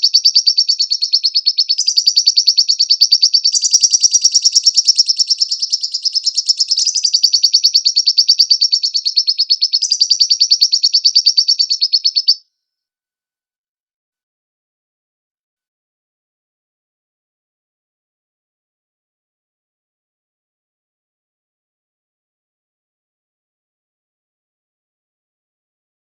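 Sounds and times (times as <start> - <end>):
bird trilling: 0.0 - 12.4.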